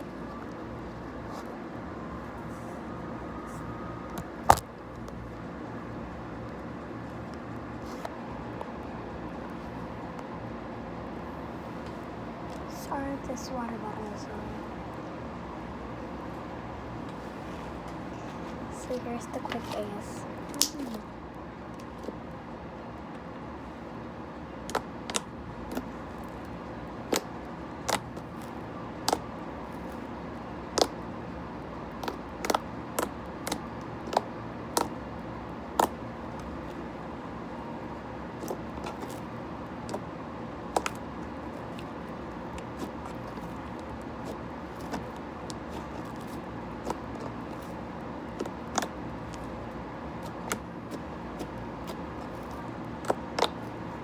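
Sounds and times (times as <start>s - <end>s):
steady background noise: 0.0s - 54.0s
slime squishing with pops: 3.4s - 5.3s, 24.6s - 31.1s, 31.9s - 35.0s, 35.7s - 36.9s, 38.3s - 54.0s.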